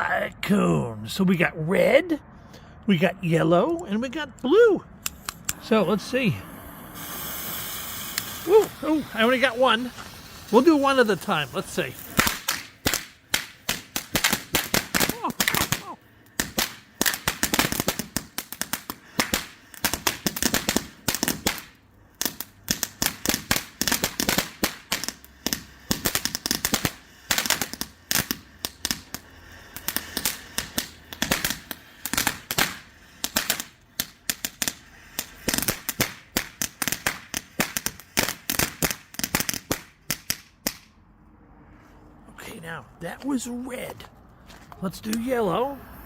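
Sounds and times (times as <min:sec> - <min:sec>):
firework fountain cracking and popping: 0:05.1 - 0:41.0.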